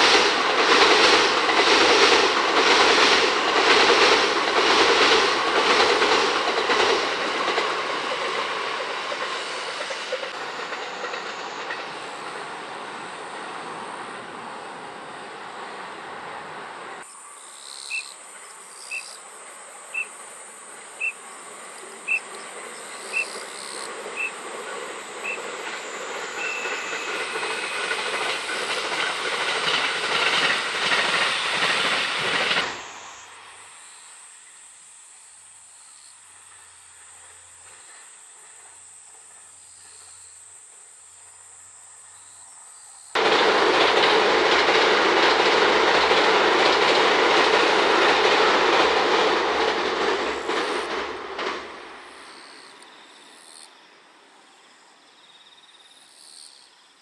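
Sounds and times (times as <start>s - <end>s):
electric train passing: 0.0s - 56.6s
insect buzz: 17.0s - 27.0s, 32.6s - 43.1s.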